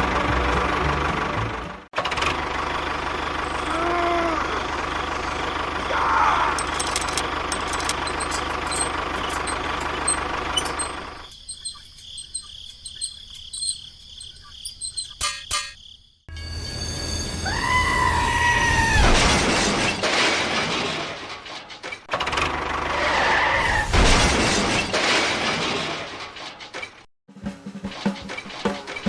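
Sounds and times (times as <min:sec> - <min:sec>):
faint high whine: 0:16.3 - 0:18.2.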